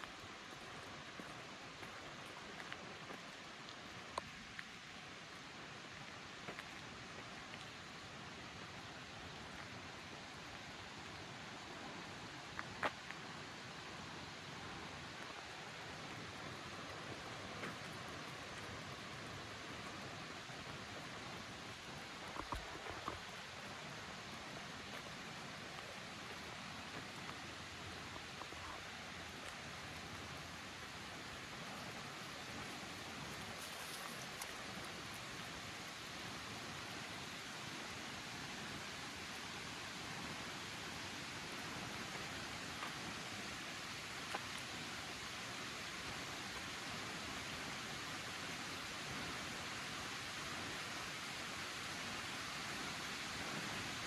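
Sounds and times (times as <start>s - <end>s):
faint ticks: 0.0s - 4.8s, 15.2s - 30.8s
forest ambience hiss: 0.0s - 54.0s.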